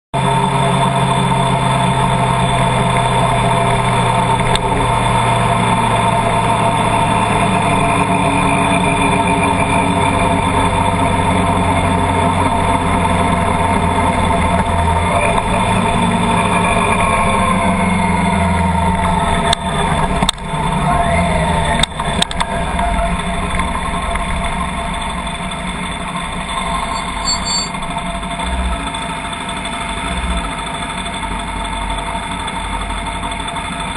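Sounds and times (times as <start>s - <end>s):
vehicle engine running: 0.1s - 33.9s.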